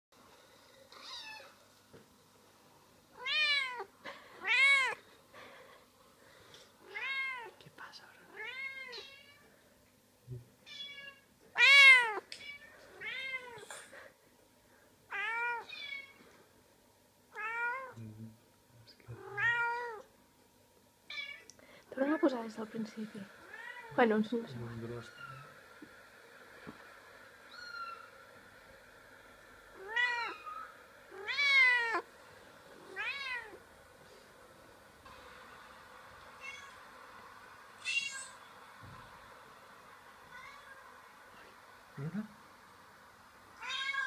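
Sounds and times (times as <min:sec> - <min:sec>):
cat meowing: 0:01.0 - 0:01.6, 0:03.2 - 0:05.0, 0:06.9 - 0:07.6, 0:08.3 - 0:09.5, 0:10.6 - 0:13.6, 0:15.1 - 0:16.2, 0:17.4 - 0:18.0, 0:19.2 - 0:20.1, 0:29.8 - 0:32.1, 0:32.9 - 0:33.6, 0:36.4 - 0:36.8, 0:37.8 - 0:38.4, 0:40.3 - 0:40.8, 0:43.6 - 0:44.0
recorded cat meows from computer: 0:37.8 - 0:38.4.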